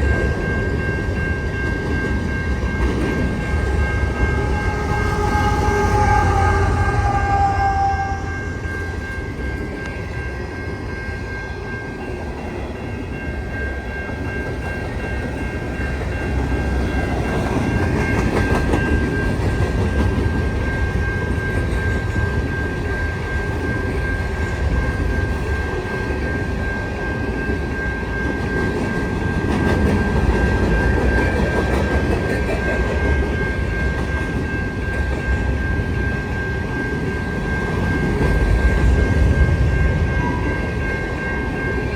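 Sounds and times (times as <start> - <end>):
freight train wheels clattering on rail: 0.0 - 6.9, 12.1 - 41.9
high-pitched tone: 2.4 - 11.3.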